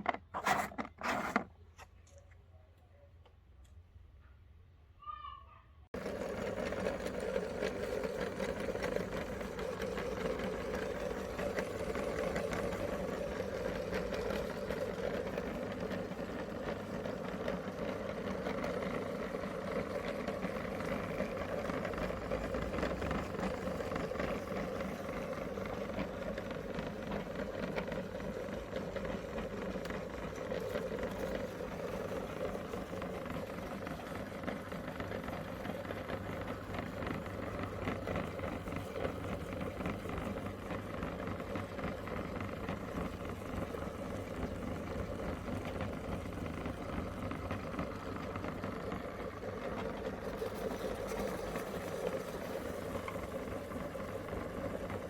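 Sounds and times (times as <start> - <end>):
meat grinder motor humming: 6.0 - 55.0.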